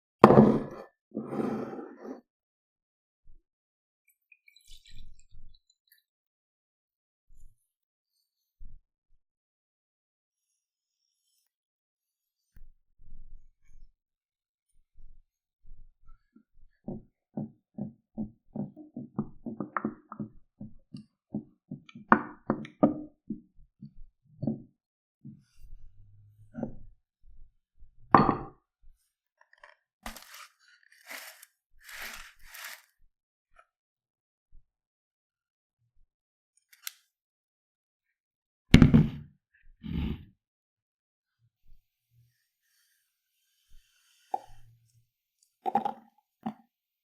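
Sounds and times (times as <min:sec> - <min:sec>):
soft irregular knocks and taps: 0:16.9 - 0:23.4, 0:24.4 - 0:24.7.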